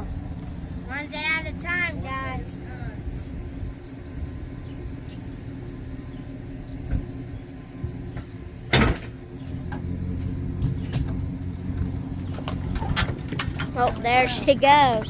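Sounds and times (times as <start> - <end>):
truck engine idling: 0.0 - 15.0
loud sharp thump: 8.7 - 9.2.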